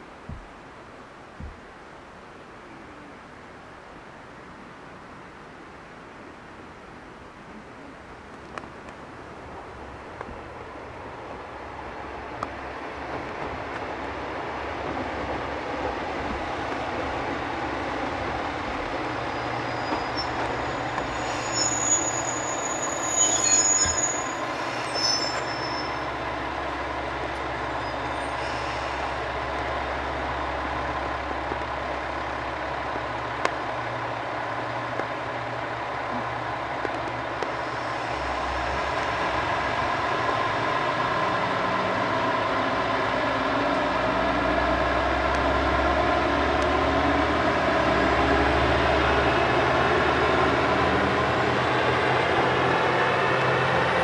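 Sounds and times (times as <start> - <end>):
diesel railcar running on rails: 8.2 - 54.0
high wheel squeals: 19.2 - 26.9, 27.6 - 29.0.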